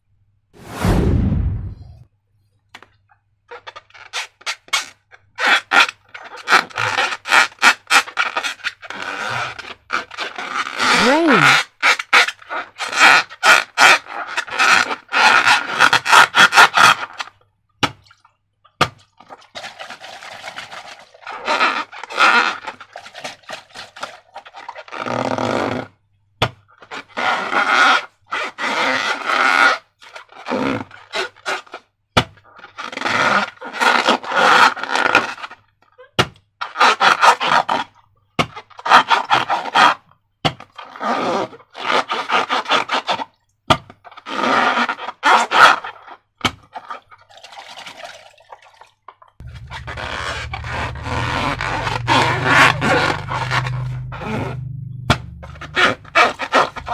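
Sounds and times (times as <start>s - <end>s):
slime crackling and squelching: 49.4s - 56.9s.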